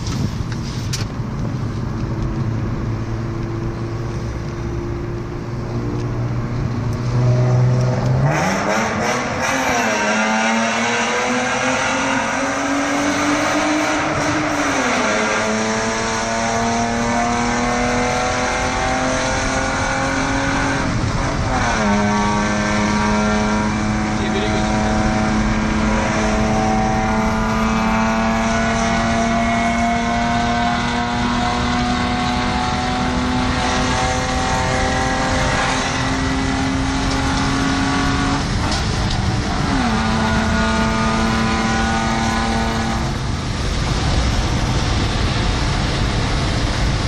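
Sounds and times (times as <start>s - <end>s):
road and wind noise: 0.0s - 47.0s
car exhaust note: 13.5s - 47.0s.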